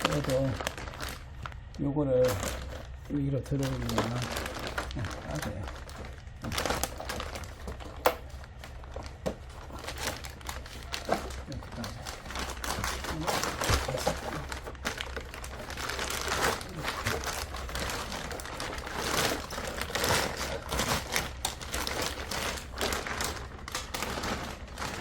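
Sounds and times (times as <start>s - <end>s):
low steady hum: 0.0s - 25.0s
material rustling and crinkling: 0.0s - 25.0s.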